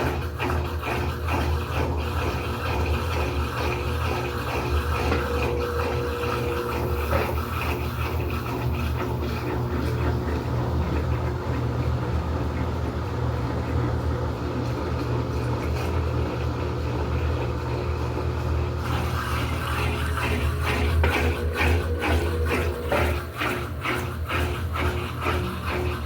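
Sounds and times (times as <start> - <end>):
washing machine motor hum: 0.0 - 26.0
washing machine rattling: 18.8 - 26.0.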